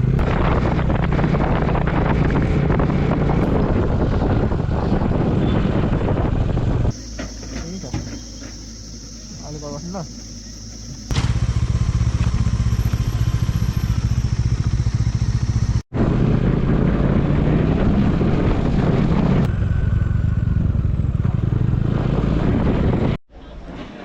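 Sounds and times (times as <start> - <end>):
motorcycle engine running: 0.0 - 23.2.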